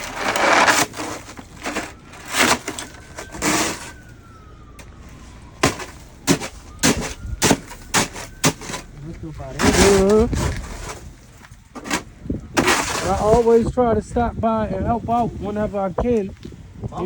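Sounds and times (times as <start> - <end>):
distant siren sliding down: 0.0 - 11.1
sharp knocks and cracks: 5.6 - 8.9.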